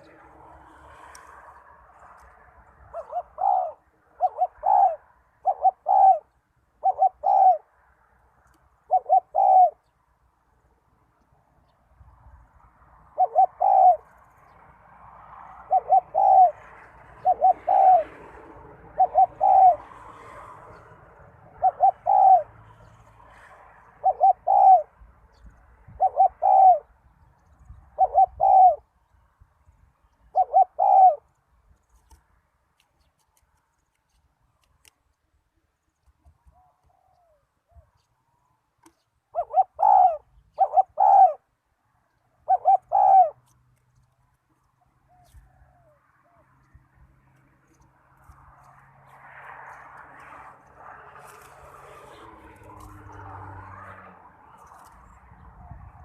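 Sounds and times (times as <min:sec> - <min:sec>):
dove cooing: 0:02.8 - 0:07.7, 0:08.8 - 0:09.9, 0:13.0 - 0:14.2, 0:15.2 - 0:26.9, 0:27.7 - 0:28.9, 0:30.3 - 0:31.4, 0:36.5 - 0:38.1, 0:38.9 - 0:41.5, 0:42.4 - 0:43.5, 0:48.6 - 0:56.0.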